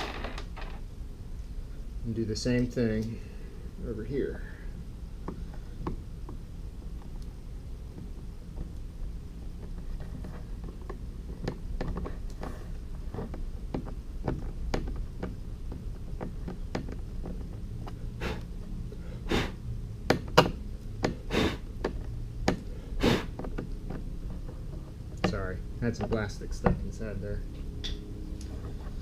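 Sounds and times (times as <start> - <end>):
clicks and knocks on plastic: 13.1 - 18.0
sharp puffs of air: 18.2 - 19.6, 21.1 - 21.7, 22.7 - 23.3.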